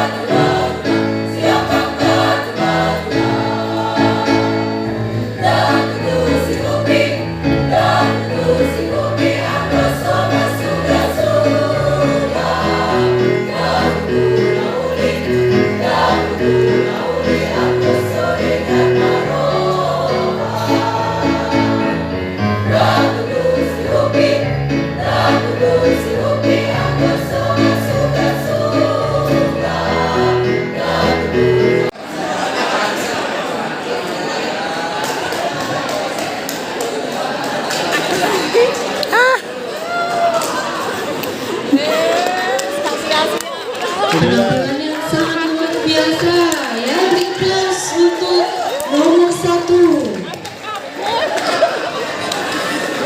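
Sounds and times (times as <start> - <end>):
choir singing in parts: 0.0 - 39.0, 44.0 - 46.2.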